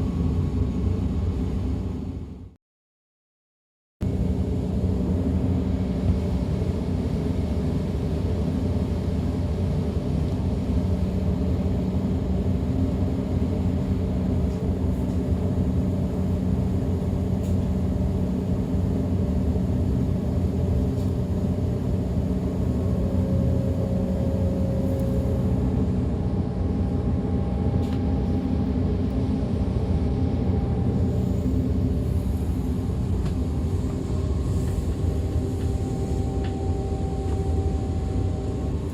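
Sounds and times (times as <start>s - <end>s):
low hum: 4.0s - 38.9s
train rolling rumble: 4.0s - 38.9s
faint high whine: 18.4s - 38.9s.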